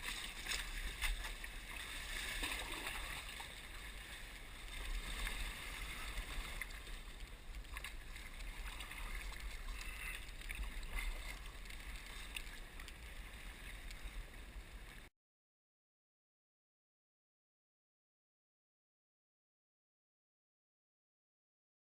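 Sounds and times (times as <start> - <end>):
paddle drips and splashes: 0.0 - 15.1
water splashing and trickling: 0.0 - 15.1.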